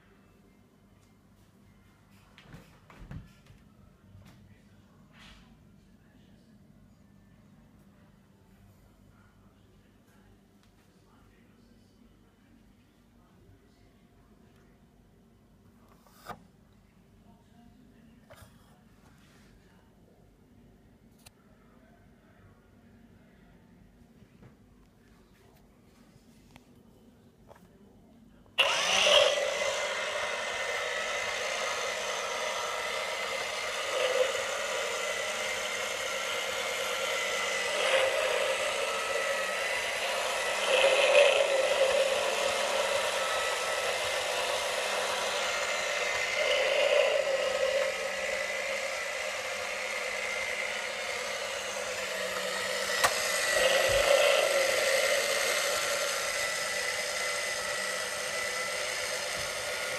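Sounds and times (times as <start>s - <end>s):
model engine mechanical whir: 28.6s - 59.9s.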